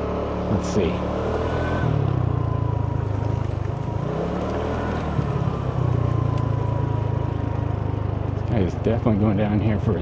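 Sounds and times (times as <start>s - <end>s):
scooter engine running: 2.0s - 8.9s.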